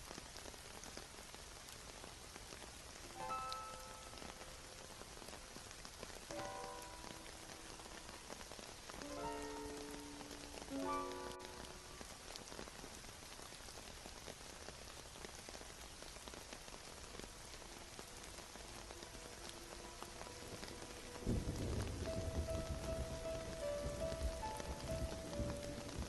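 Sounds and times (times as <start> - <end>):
steady rain falling: 0.0 - 26.0
thunder rumble: 20.3 - 26.0.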